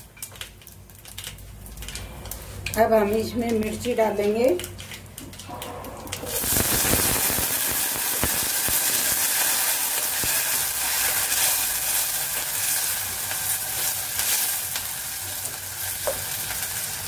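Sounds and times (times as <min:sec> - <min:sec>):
chillies sizzling in hot oil: 0:06.2 - 0:17.0.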